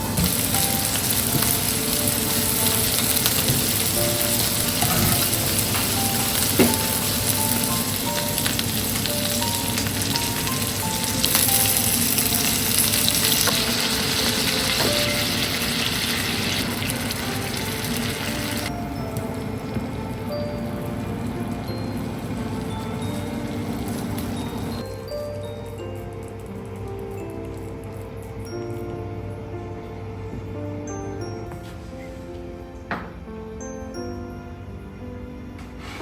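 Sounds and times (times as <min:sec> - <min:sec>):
food sizzling in a pan: 0:00.0 - 0:18.7
soft background music: 0:00.0 - 0:36.0.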